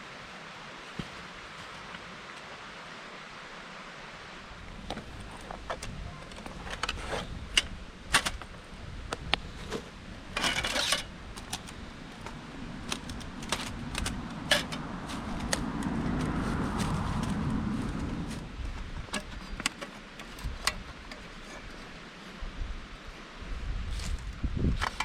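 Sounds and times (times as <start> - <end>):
rustling: 9.3 - 21.9.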